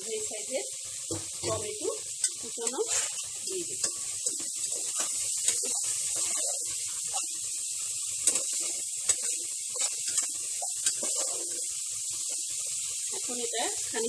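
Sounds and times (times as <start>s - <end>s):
food sizzling in hot oil: 0.0s - 14.0s
spatula scraping a pot: 2.2s - 7.5s, 8.1s - 12.8s.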